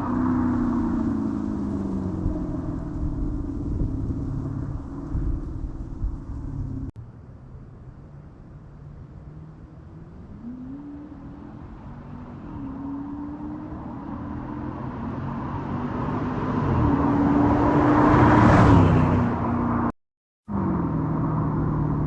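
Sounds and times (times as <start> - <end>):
car engine driving past: 9.2 - 19.9.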